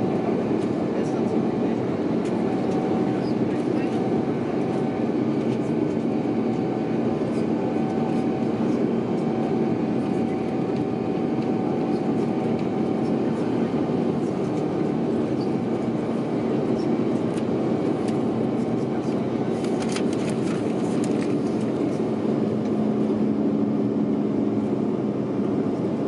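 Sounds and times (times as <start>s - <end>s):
jet engine and airflow rumble: 0.0s - 26.0s.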